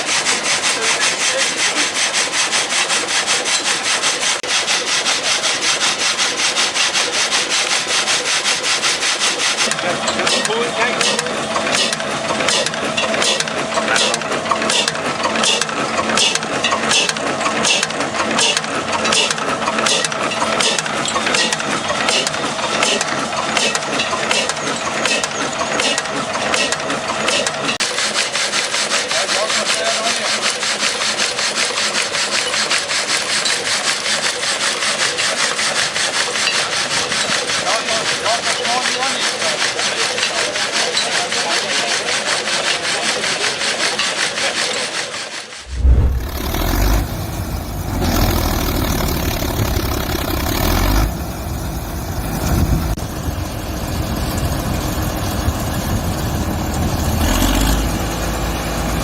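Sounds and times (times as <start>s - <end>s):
reciprocating saw cutting wood: 0.0s - 53.0s
diesel engine running: 9.7s - 27.8s, 45.6s - 59.0s.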